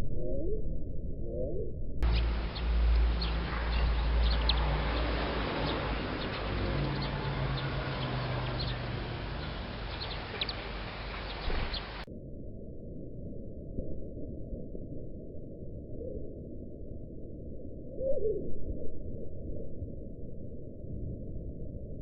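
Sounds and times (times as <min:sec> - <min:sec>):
steady low rumble: 0:00.0 - 0:22.0
small birds chirping: 0:02.0 - 0:12.1.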